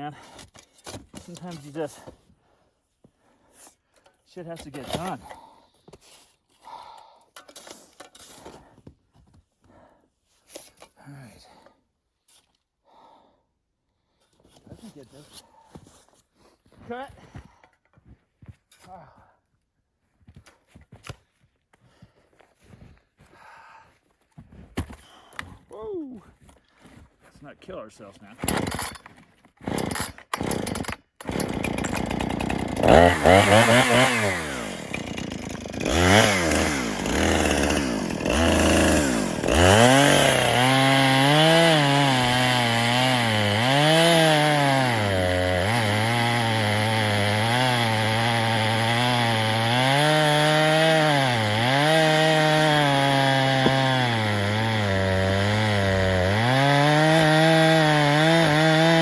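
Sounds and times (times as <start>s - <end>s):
chainsaw cutting wood: 4.4s - 5.4s, 28.4s - 59.0s
chainsaw revving: 28.4s - 29.0s, 29.6s - 59.0s.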